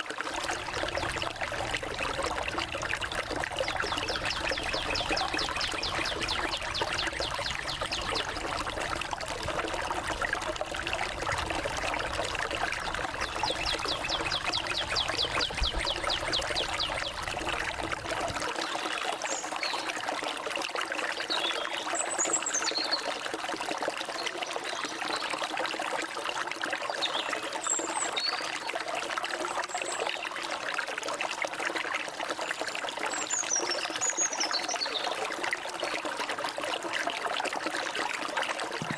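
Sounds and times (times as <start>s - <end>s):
stream trickling and splashing: 0.0s - 38.9s
birds singing: 0.5s - 9.0s, 12.6s - 17.8s.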